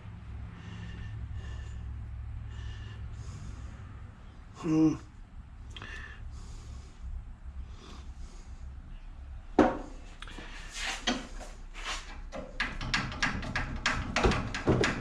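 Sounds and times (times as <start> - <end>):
scrap metal knocking and clinking: 12.1 - 15.0.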